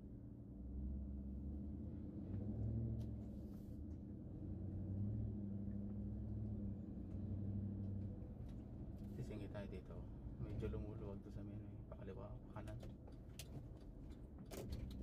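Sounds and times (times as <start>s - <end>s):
engine and road hum: 0.0s - 15.0s.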